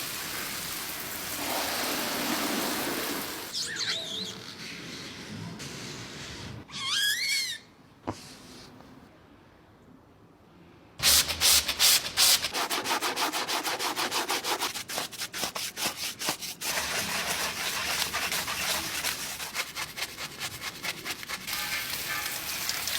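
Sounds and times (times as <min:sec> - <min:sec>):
car wash brushes scrubbing: 0:00.3 - 0:03.6, 0:11.0 - 0:22.9.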